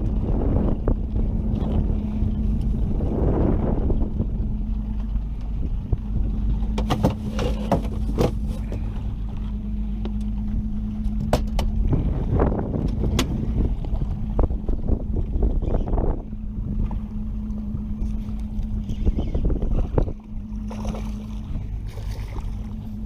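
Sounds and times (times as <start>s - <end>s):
steady hum: 0.0s - 23.0s
wind rumbling on microphone: 0.0s - 23.0s.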